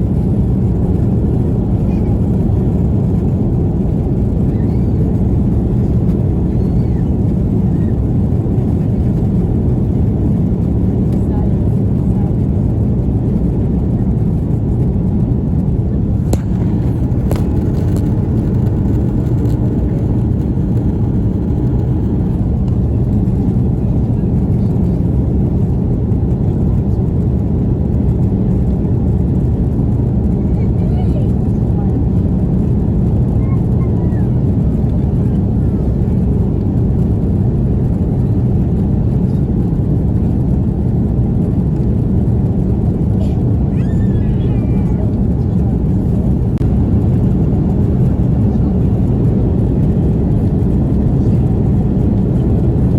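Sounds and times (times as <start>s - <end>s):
aircraft cabin rumble: 0.0s - 52.9s.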